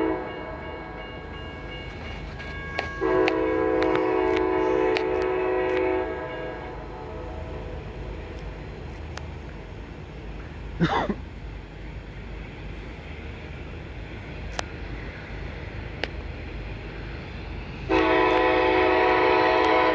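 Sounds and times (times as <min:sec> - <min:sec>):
locomotive horn: 0:00.0 - 0:01.0, 0:02.4 - 0:08.4, 0:17.9 - 0:19.9
train rumbling past: 0:00.0 - 0:19.9.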